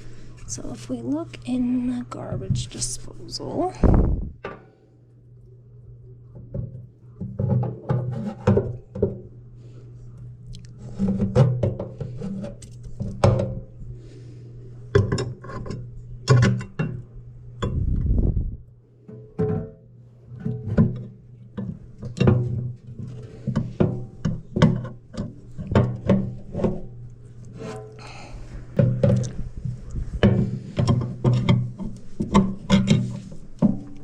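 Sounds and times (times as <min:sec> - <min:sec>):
plucked bass notes: 0:17.6 - 0:18.6.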